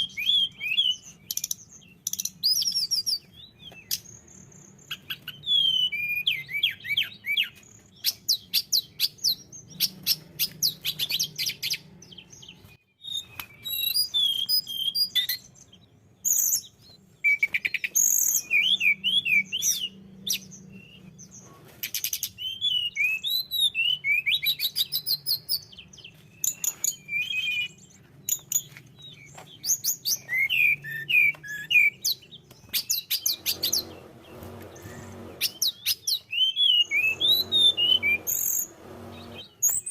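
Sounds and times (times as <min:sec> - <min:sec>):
bird singing chirps and trills: 0:00.0 - 0:39.9
faint low hum: 0:33.3 - 0:35.7.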